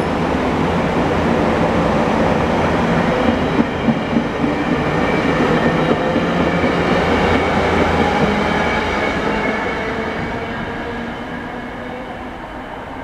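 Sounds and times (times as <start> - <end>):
train passing with steady rumble: 0.0 - 13.0.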